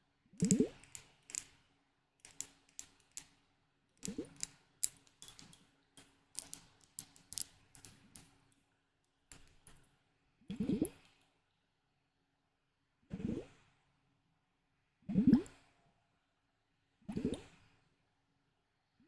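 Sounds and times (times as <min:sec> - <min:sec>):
tapping on small hard objects: 0:00.4 - 0:01.6, 0:02.2 - 0:03.4, 0:04.0 - 0:08.6, 0:09.3 - 0:09.8.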